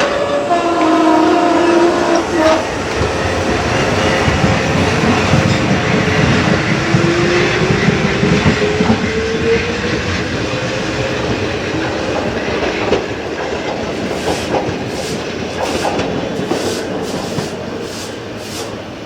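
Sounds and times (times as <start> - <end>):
electric train motor whine: 0.0 - 19.0
wheels clicking over rails: 11.0 - 19.0.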